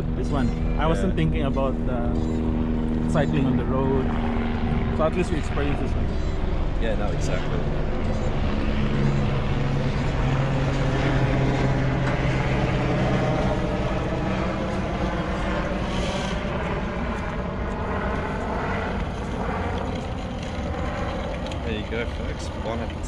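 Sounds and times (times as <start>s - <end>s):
aircraft engine droning overhead: 0.0s - 23.0s.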